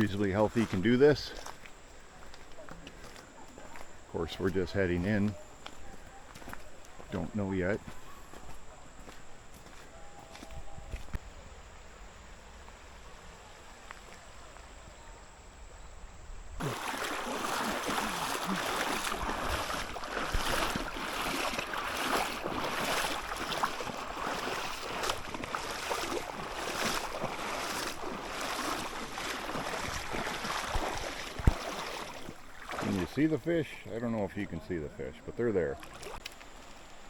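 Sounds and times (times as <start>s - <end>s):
rushing river water: 16.6s - 33.4s.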